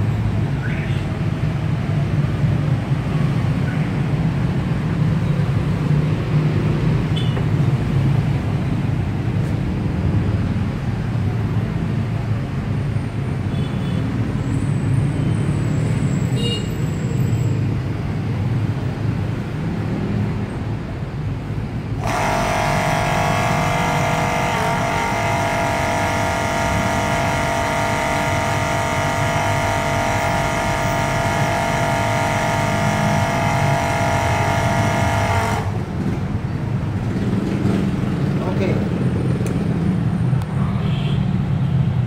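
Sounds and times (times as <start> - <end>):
electric pump motor whining: 22.0 - 36.3.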